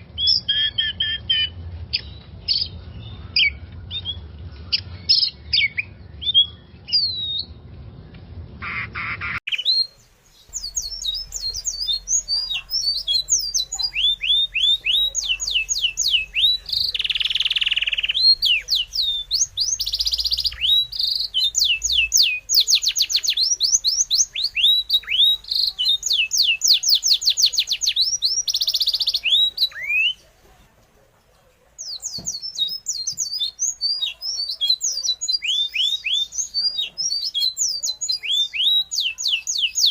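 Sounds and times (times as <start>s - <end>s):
birds chirping: 0.0s - 39.9s
harsh bird squawks: 8.6s - 9.9s.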